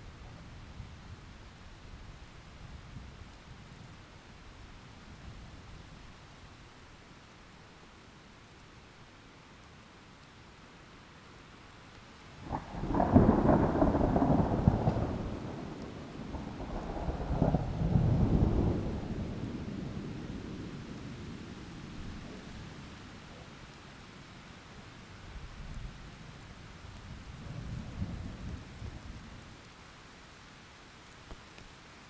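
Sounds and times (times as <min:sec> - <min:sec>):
light rain: 0:00.0 - 0:32.0
thunder rolling: 0:12.5 - 0:19.8.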